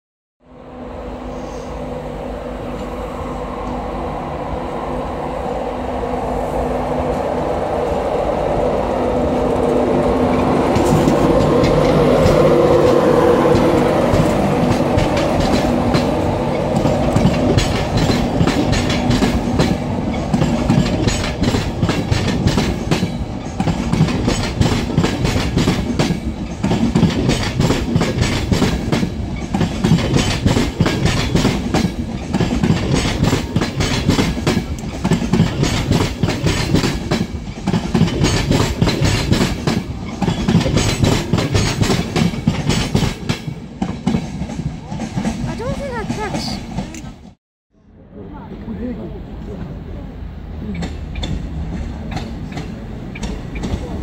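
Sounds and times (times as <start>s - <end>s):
electric locomotive hum: 0.4s - 54.0s
wheels clattering over rail joints: 9.2s - 47.2s.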